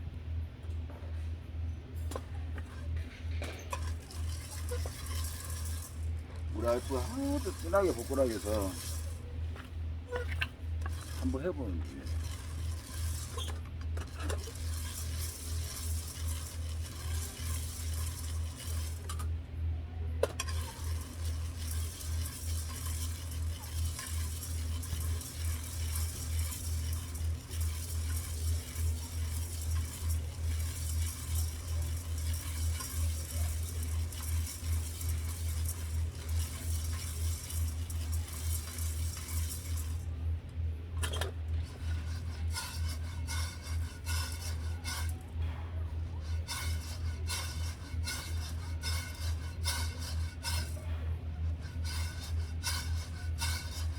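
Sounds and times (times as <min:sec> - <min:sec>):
low pulsing hum: 0:00.0 - 0:53.9
coffee beans rattling in roaster: 0:02.0 - 0:53.9.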